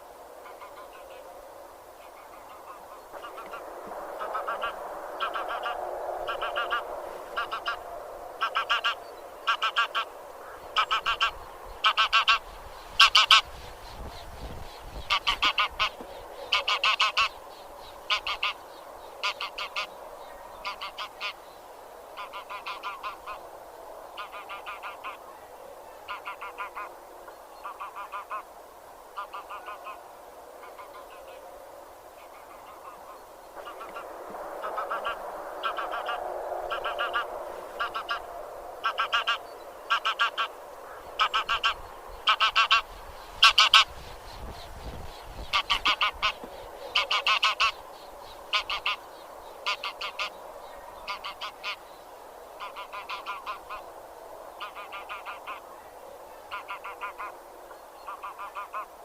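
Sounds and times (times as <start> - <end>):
geese chattering: 2.1 - 3.6, 4.2 - 7.8, 8.4 - 14.0, 15.0 - 17.4, 18.0 - 18.6, 19.2 - 20.0, 20.6 - 21.4, 22.2 - 23.4, 24.2 - 25.3, 26.1 - 26.9, 27.6 - 28.5, 29.2 - 30.0, 32.2 - 44.0, 45.3 - 47.8, 48.5 - 49.0, 49.6 - 50.4, 51.0 - 51.8, 52.6 - 53.9, 54.6 - 55.8, 56.4 - 57.4, 58.0 - 58.9
geese honking: 2.2 - 3.6, 4.2 - 13.5, 15.1 - 17.4, 18.1 - 18.6, 19.2 - 20.0, 20.6 - 21.4, 22.2 - 23.4, 24.2 - 25.2, 26.1 - 26.9, 27.6 - 28.5, 29.2 - 30.0, 32.3 - 43.9, 45.5 - 47.8, 48.5 - 49.0, 49.6 - 50.4, 51.0 - 51.8, 52.6 - 53.9, 54.6 - 55.6, 56.5 - 57.4, 58.1 - 58.9.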